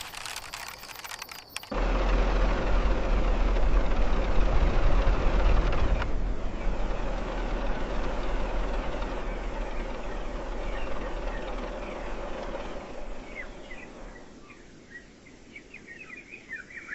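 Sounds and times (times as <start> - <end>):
birds chirping: 0.0 - 1.7, 5.7 - 16.9
truck engine rumble: 0.0 - 14.8.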